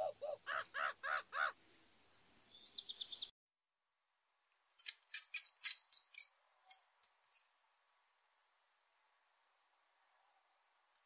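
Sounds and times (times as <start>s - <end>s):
high bird-like chirping: 2.5s - 3.3s, 4.8s - 7.5s.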